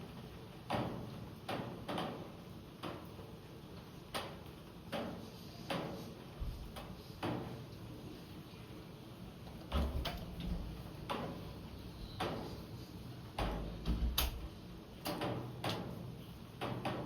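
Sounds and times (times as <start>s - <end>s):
raindrops tapping on hard surface: 0.6s - 3.3s, 4.1s - 7.6s, 9.5s - 11.5s, 16.6s - 17.0s.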